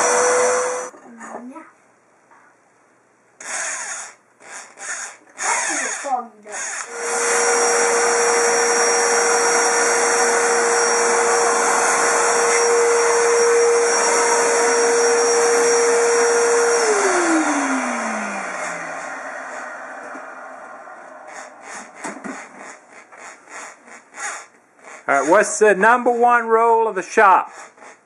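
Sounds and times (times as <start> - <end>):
electric motor whining: 0.0 - 0.9, 3.4 - 26.2
motor winding down: 0.0 - 0.9, 3.4 - 25.7.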